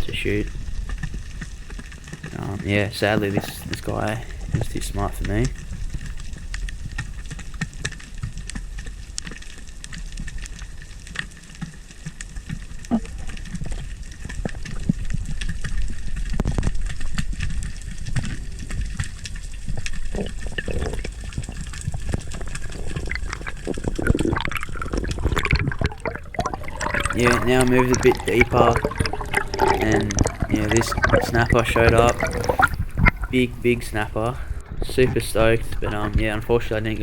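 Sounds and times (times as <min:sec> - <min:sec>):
low rumble of moving water: 0:00.0 - 0:37.0
underwater crackle of clicks: 0:18.8 - 0:33.5.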